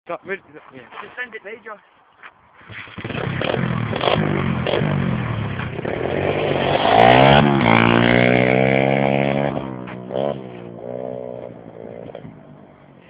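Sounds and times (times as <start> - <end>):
pit bike engine revving: 2.6 - 13.0.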